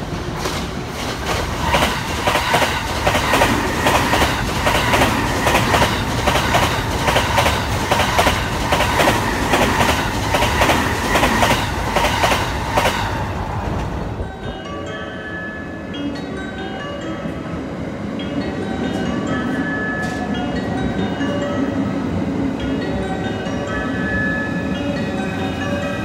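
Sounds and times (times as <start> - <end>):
train whine: 0.0 - 26.0
train wheels clacking over joints: 0.4 - 14.0.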